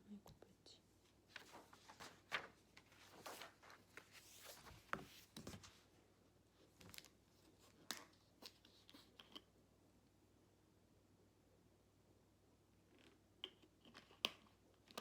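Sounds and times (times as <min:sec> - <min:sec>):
paper rustling: 0:01.2 - 0:05.9.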